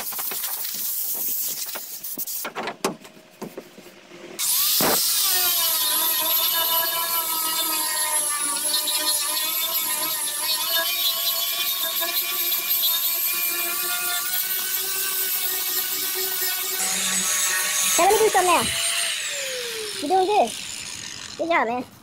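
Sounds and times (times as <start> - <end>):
power sander motor whining: 15.7 - 21.4.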